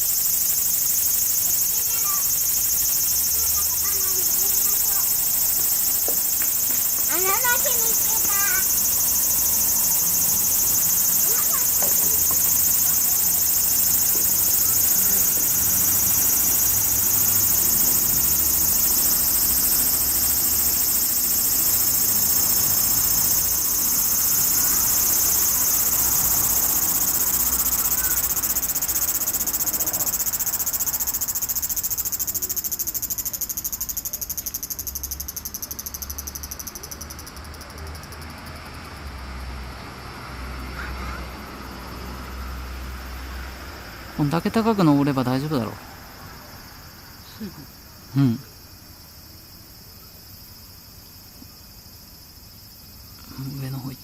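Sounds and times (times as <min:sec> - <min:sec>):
insects shrilling: 0:00.0 - 0:38.6.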